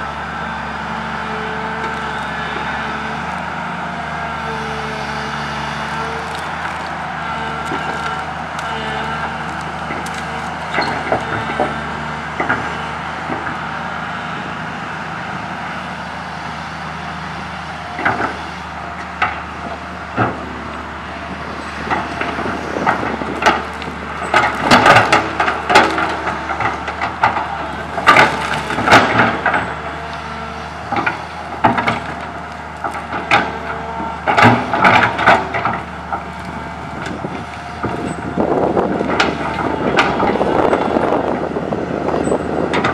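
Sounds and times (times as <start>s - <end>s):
excavator diesel engine running: 0.0s - 42.9s
tree branches cracking and snapping: 4.4s - 13.5s, 21.6s - 40.9s.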